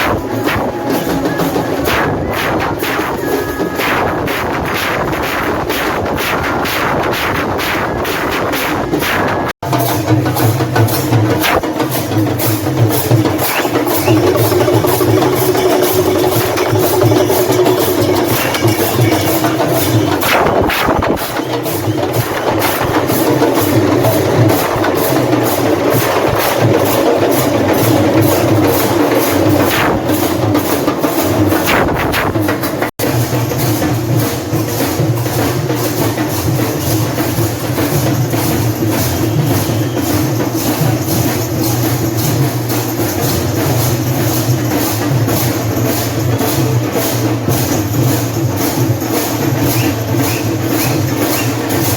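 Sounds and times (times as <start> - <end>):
drums beating fast rhythm: 0.0 - 51.9.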